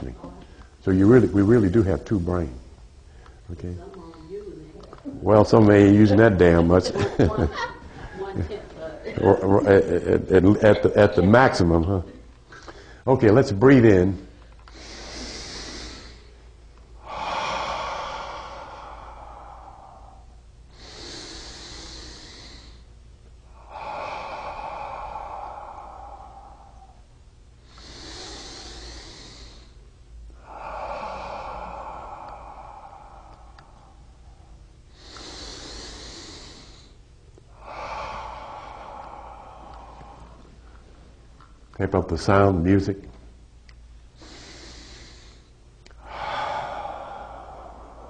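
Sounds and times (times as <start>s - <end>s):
slow deep breathing: 12.5s - 13.1s, 14.0s - 41.7s, 43.7s - 48.0s.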